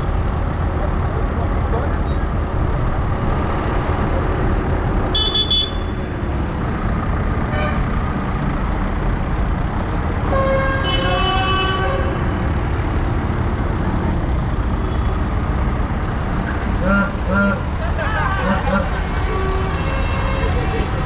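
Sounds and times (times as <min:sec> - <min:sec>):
tractor engines running: 0:00.0 - 0:21.0
horn toot: 0:16.8 - 0:17.7.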